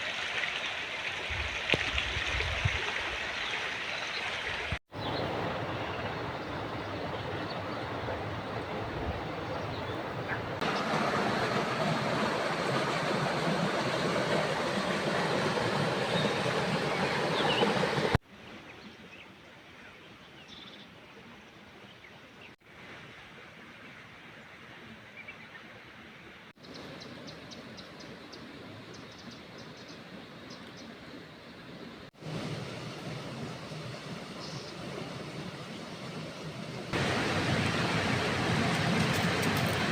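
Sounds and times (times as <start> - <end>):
rushing outdoor noise: 0.0 - 18.2, 26.6 - 39.9.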